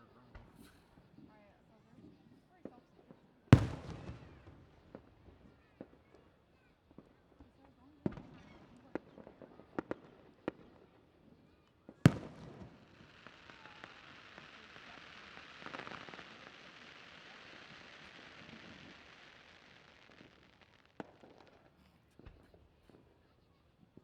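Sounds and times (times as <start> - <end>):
firework bang: 3.6 - 4.6
firework crackling: 3.6 - 5.2, 12.1 - 21.7
firework pops: 3.6 - 6.0, 12.0 - 23.1.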